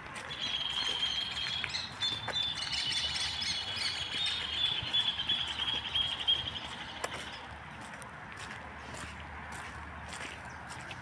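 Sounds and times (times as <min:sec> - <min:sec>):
high bird chirps: 0:00.3 - 0:07.5.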